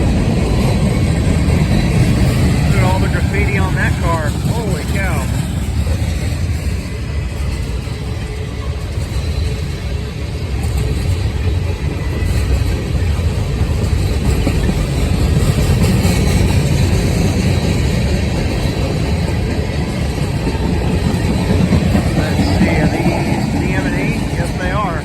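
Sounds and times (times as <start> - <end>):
freight train wheels rumbling: 0.0 - 25.0.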